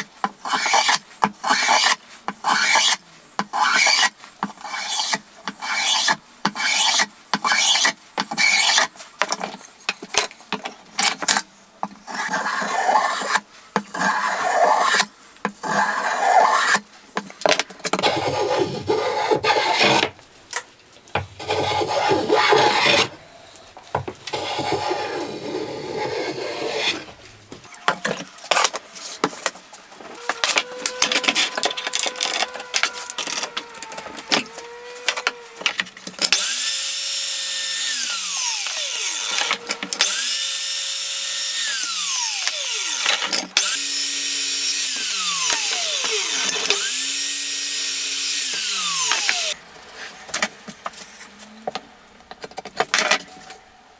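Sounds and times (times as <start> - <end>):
wood scraping and rasping: 0.4 - 9.6, 11.0 - 16.8, 17.8 - 20.2, 21.4 - 51.3
power tool motor spinning: 30.0 - 49.6.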